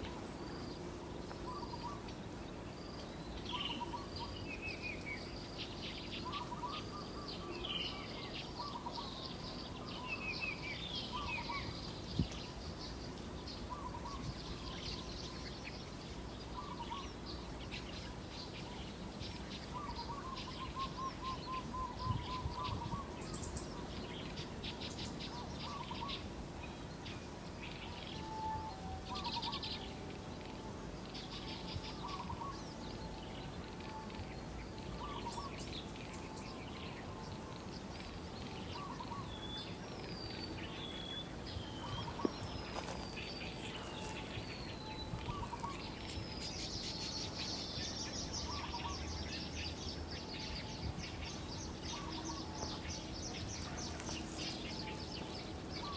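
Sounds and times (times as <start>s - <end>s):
high bird chirping: 31.2s - 55.9s.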